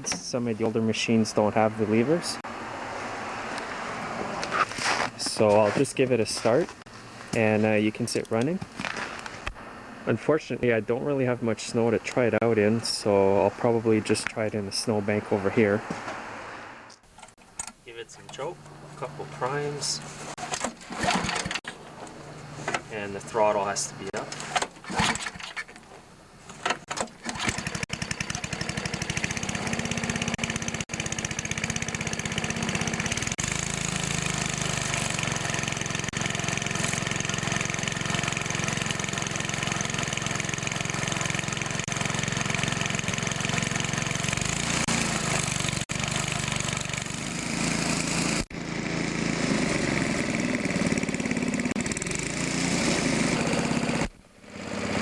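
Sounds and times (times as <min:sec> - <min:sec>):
snowblower engine running: 0:18.4 - 0:24.6, 0:27.2 - 0:55.0.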